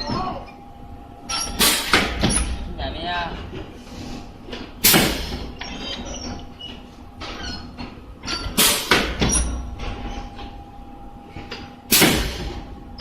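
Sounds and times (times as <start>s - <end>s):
steady machine hum: 0.0s - 13.0s
welding machine clunking: 1.3s - 2.7s, 4.5s - 10.6s, 11.4s - 12.7s.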